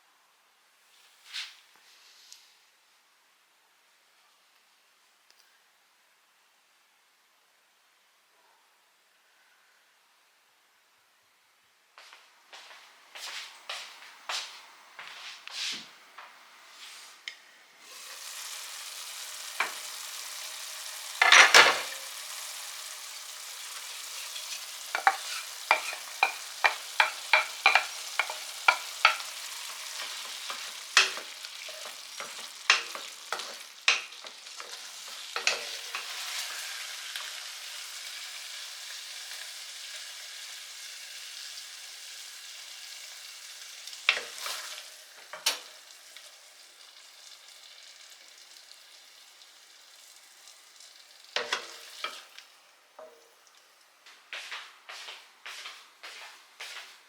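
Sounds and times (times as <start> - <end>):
food sizzling in a frying pan: 17.8 - 53.8
utensil tapping against pan: 25.0 - 29.4.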